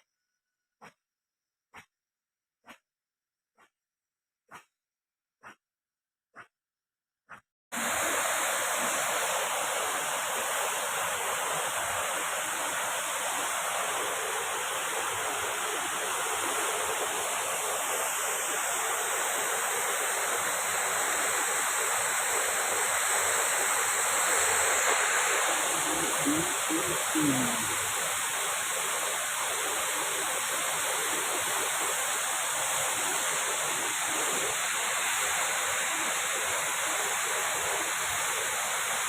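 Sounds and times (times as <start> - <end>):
waterfall rushing: 7.8 - 37.9.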